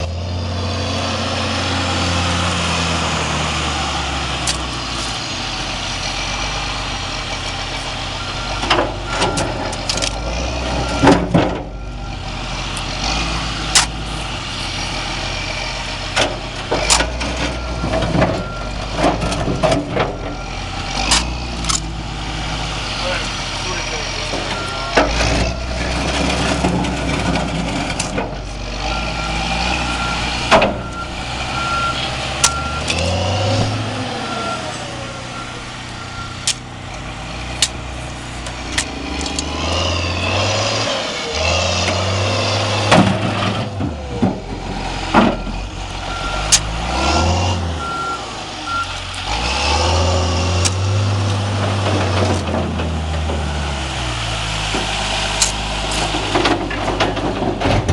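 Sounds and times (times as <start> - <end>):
diesel engine revving: 0.0 - 57.9
reverse alarm beeping: 24.5 - 25.0, 28.9 - 33.0, 34.2 - 36.4, 47.8 - 49.0.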